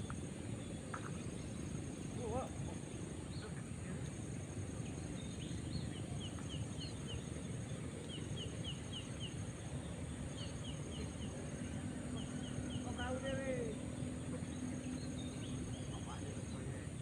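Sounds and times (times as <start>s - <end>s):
low outdoor background noise: 0.0s - 17.0s.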